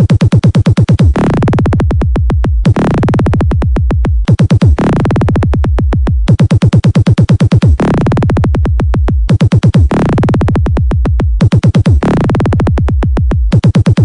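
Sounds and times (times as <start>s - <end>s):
electronic dance music: 0.0s - 14.0s
fast drum machine hits: 0.0s - 14.0s
held heavy bass line: 1.1s - 6.3s, 7.7s - 9.3s, 9.9s - 14.0s.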